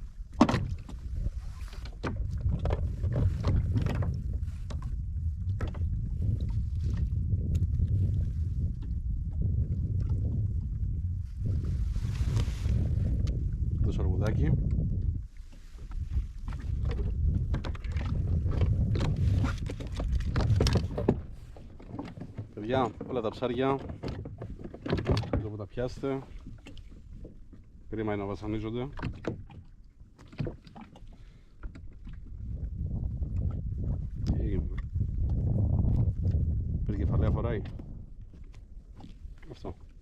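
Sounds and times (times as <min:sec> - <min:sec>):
wind rumble on microphone: 0:00.0 - 0:40.0
knocks and clatters on kayak: 0:00.3 - 0:40.0
steady low rumble: 0:02.3 - 0:15.3.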